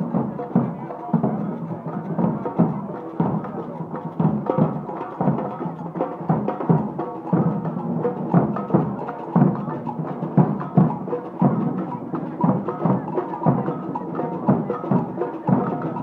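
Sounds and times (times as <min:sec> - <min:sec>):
drums beating steady rhythm: 0:00.0 - 0:16.0
marching band playing: 0:00.0 - 0:16.0.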